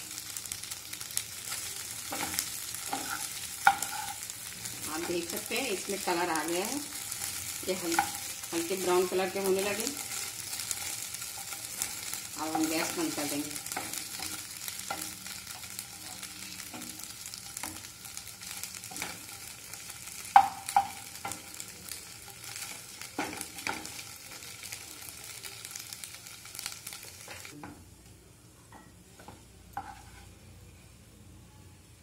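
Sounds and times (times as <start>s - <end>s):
food sizzling in oil: 0.0s - 27.6s, 29.0s - 30.5s
spatula stirring and scraping: 1.5s - 21.6s, 29.7s - 30.4s
spatula clacking against pan: 2.1s - 4.2s, 20.3s - 21.4s.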